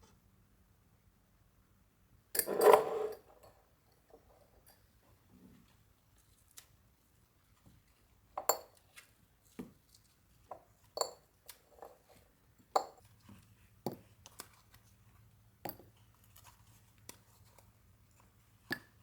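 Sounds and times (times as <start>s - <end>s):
kitchenware clinking and knocking: 2.4s - 3.3s.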